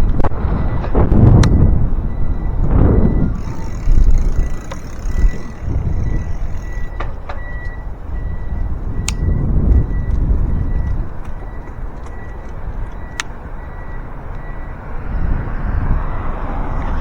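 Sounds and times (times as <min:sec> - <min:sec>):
sharp clicks: 0:00.0 - 0:01.7, 0:02.6 - 0:14.6
bicycle rolling noise: 0:00.0 - 0:17.0
wind rumbling on microphone: 0:00.0 - 0:17.0
faint high whine: 0:01.6 - 0:10.9.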